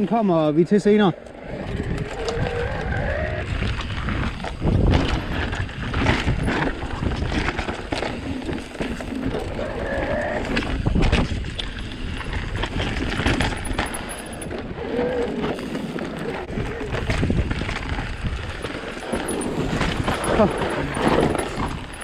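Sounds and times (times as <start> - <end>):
wind on microphone: 1.4 - 13.8, 14.4 - 22.0
bike knocks and rattles: 3.8 - 9.6, 10.4 - 14.7, 15.4 - 22.0.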